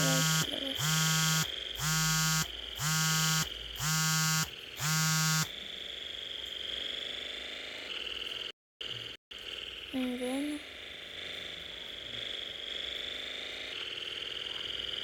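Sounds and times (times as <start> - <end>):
electronic buzzer pulsing: 0.0 - 5.6
high-pitched whine: 0.0 - 15.0.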